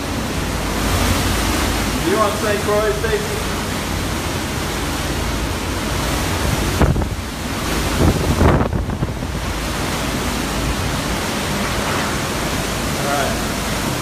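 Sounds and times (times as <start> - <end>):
strong wind buffeting microphone: 3.4 - 14.0.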